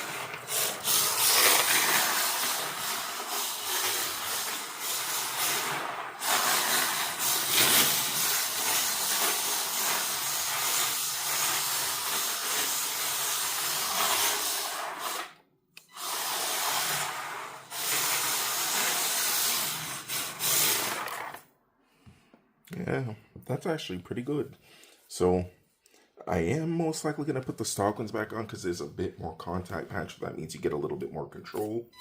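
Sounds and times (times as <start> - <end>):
small electric motor running: 0.0 - 15.3
plastic tyres sliding hiss: 0.0 - 15.4, 16.0 - 21.4.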